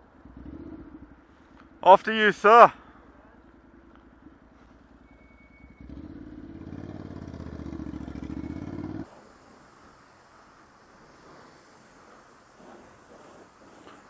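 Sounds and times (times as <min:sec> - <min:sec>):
motorcycle engine revving: 0:00.0 - 0:01.8, 0:03.0 - 0:09.1.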